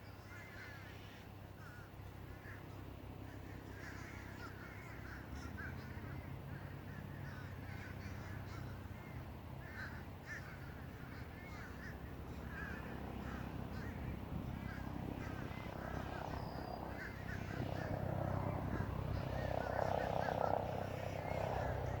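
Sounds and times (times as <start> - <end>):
crows cawing: 0.2 - 22.0
steady low rumble: 10.2 - 22.0.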